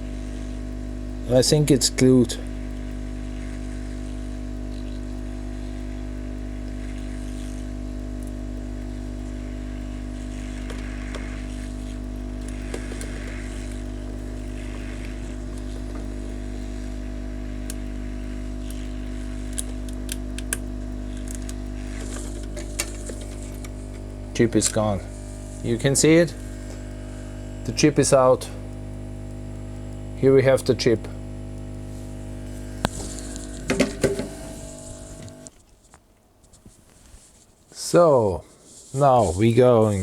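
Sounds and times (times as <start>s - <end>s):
electrical hum: 0.0s - 35.6s
hot air gun blowing: 9.1s - 20.0s, 21.0s - 28.7s, 30.2s - 35.5s.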